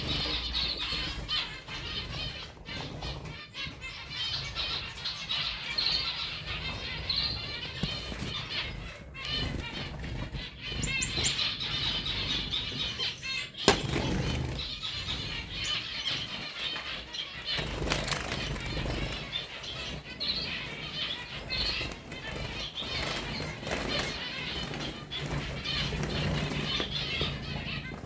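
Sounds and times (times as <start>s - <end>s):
finches chirping and twittering: 0.0s - 28.0s
wings fluttering: 7.8s - 20.0s.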